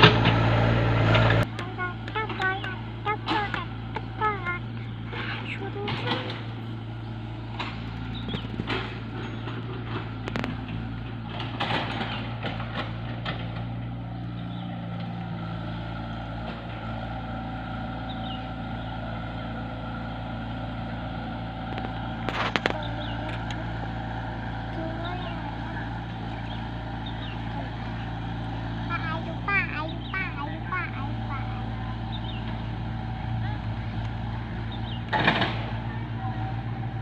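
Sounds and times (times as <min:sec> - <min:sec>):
engine running steadily: 0:00.0 - 0:37.0
knocks and clatters: 0:01.1 - 0:06.6, 0:07.5 - 0:13.9, 0:21.7 - 0:23.6, 0:35.1 - 0:35.9.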